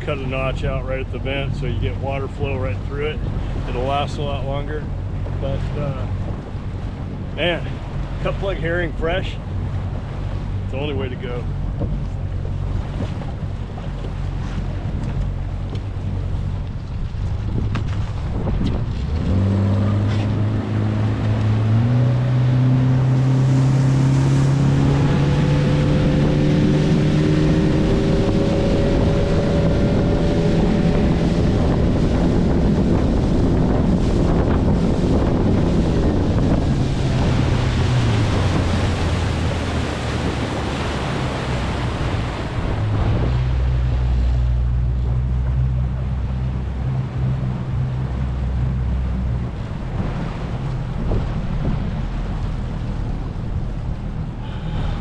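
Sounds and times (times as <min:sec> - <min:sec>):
boat motor running: 0:00.0 - 0:55.0
wind and water rushing: 0:00.0 - 0:55.0.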